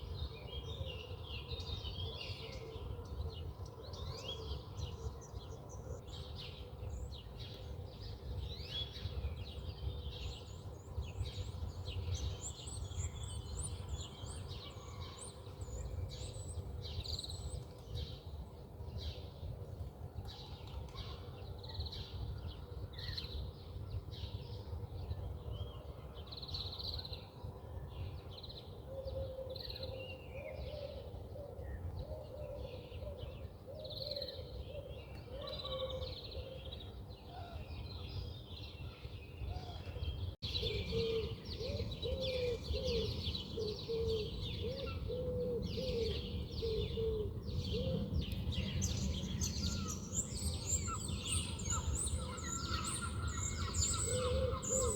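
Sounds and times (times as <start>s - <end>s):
birds chirping and twittering: 0.0s - 19.2s, 27.9s - 54.9s
low-pitched repeated bird call: 49.0s - 54.9s.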